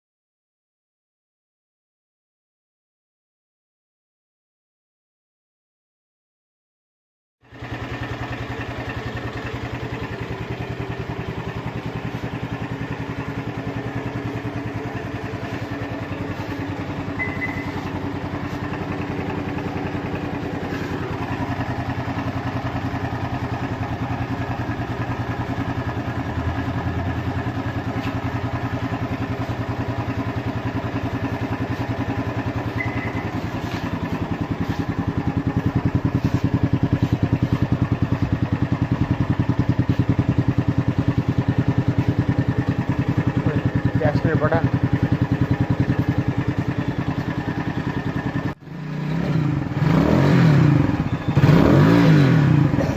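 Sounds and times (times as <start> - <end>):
motorcycle engine idling: 7.4 - 52.9.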